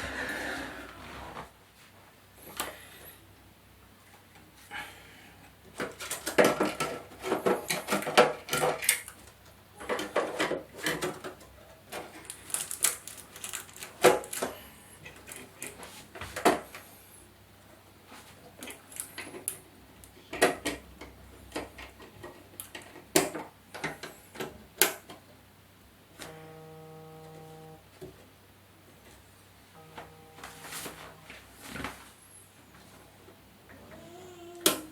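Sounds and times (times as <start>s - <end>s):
plastic and metal parts clattering: 5.7s - 16.9s
short steady buzzing tone: 26.2s - 27.9s, 29.7s - 31.5s.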